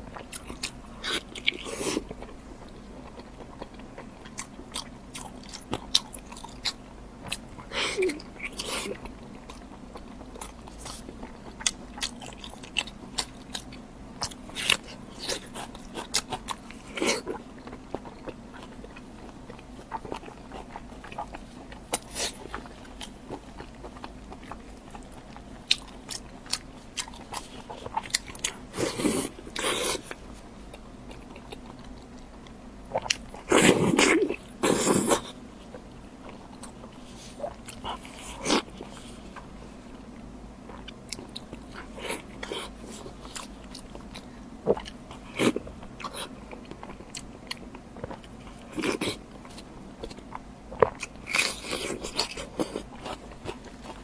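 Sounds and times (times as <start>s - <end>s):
biting and chewing food: 0.0s - 39.6s, 40.6s - 54.0s
person biting and chewing food: 10.4s - 32.2s.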